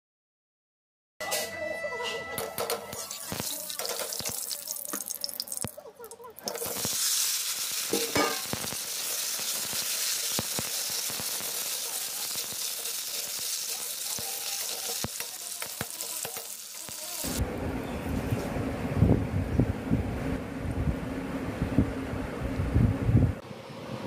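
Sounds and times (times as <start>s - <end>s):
potatoes sizzling in hot oil: 2.9s - 5.8s, 6.4s - 17.4s
oil popping and spattering: 3.0s - 17.4s.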